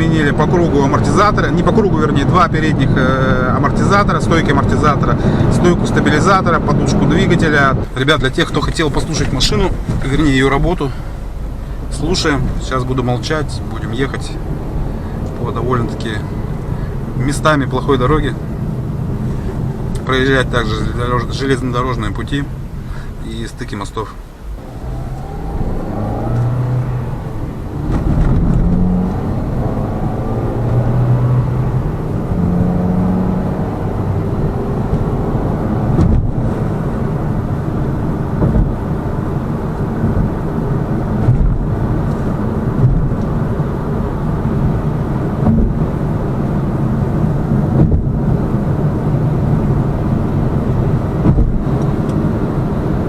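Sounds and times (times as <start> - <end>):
car engine pulling through gears: 0.0 - 53.0
car bumps on rough road: 8.4 - 13.3, 24.4 - 29.2, 35.9 - 36.8, 38.3 - 38.8, 41.1 - 43.4, 45.3 - 46.1, 47.5 - 48.5, 51.1 - 52.3.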